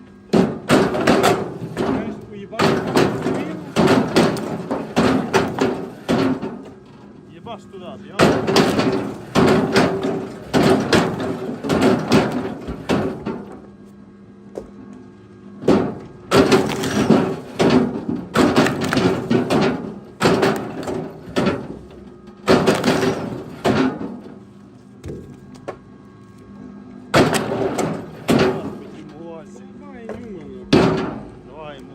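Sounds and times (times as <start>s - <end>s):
firewood knocking and clattering: 0.3s - 7.1s, 8.2s - 13.6s, 15.6s - 24.4s, 27.1s - 29.1s, 30.0s - 31.4s.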